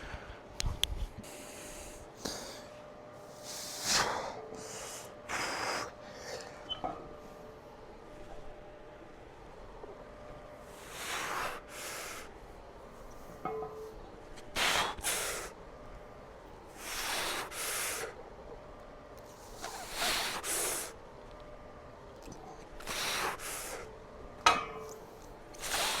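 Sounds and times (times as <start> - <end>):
person breathing hard: 0.0 - 0.5, 1.2 - 2.8, 3.4 - 6.7, 14.5 - 15.6, 16.8 - 18.2, 22.8 - 23.9, 25.6 - 26.0.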